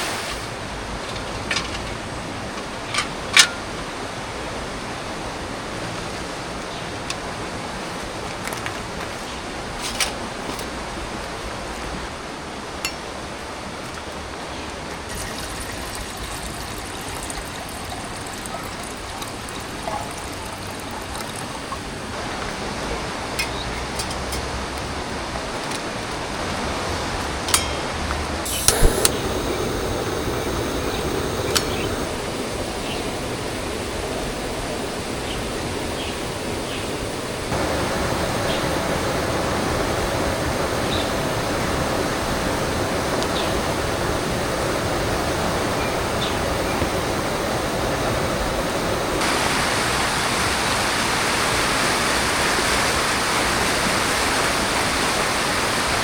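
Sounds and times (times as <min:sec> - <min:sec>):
flowing river: 0:00.0 - 0:56.0
sharp clicks: 0:28.5 - 0:32.1.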